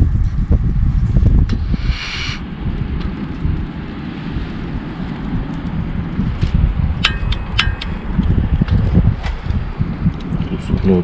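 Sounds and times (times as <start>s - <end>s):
wind buffeting microphone: 0.0s - 11.0s
light metallic clinks: 7.0s - 8.3s.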